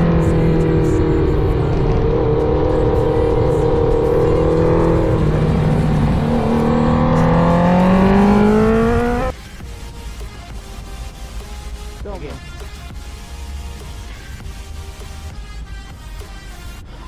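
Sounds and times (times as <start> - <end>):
motorcycle engine accelerating: 0.0 - 9.3.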